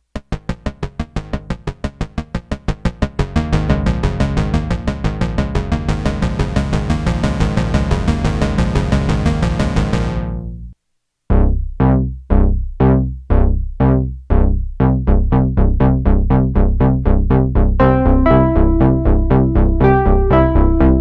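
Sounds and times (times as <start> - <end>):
rapidly repeating synthesizer patch: 0.1 - 10.4
plucked synth bass notes: 0.1 - 21.0
held high synth notes: 17.8 - 21.0.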